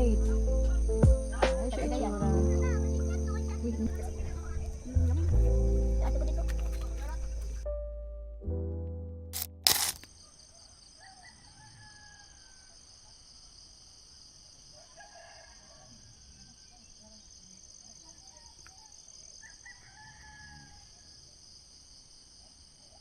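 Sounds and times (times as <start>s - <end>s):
night insects chorus: 0.0s - 7.6s, 9.4s - 23.0s
distant rooster crowing: 10.8s - 13.1s, 14.7s - 16.9s, 19.3s - 21.2s.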